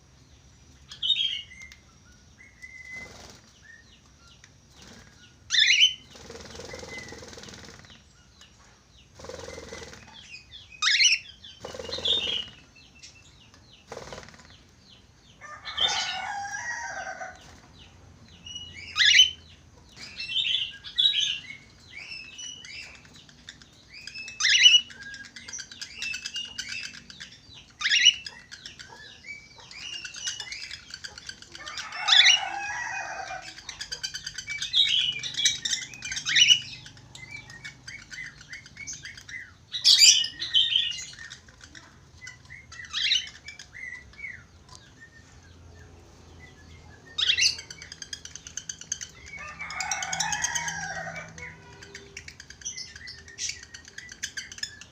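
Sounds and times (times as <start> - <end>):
budgerigars chattering: 9.2 - 12.6, 18.5 - 44.5, 47.1 - 54.9.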